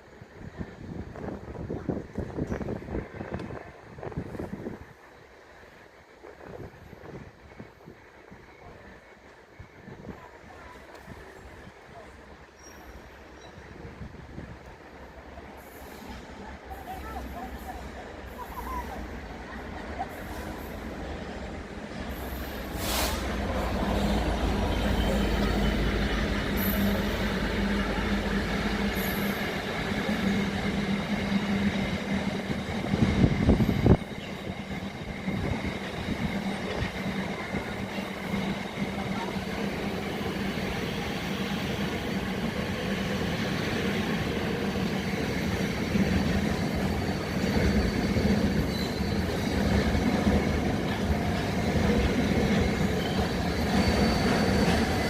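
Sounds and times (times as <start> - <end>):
train engine drone: 0.0 - 55.0
wheels rolling on rails: 25.0 - 55.0.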